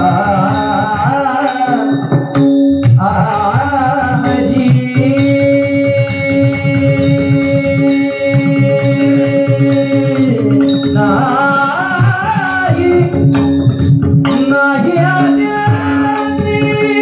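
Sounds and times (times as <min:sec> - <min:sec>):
harmonium chords: 0:00.0 - 0:17.0
percussion strikes: 0:00.0 - 0:17.0
wavering melodic line: 0:00.1 - 0:17.0.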